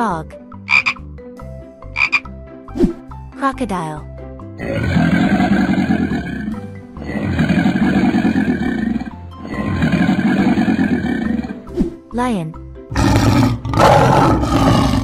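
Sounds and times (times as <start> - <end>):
children's background music: 0.0 - 15.0
crocodile growls: 4.6 - 11.7, 12.9 - 15.0.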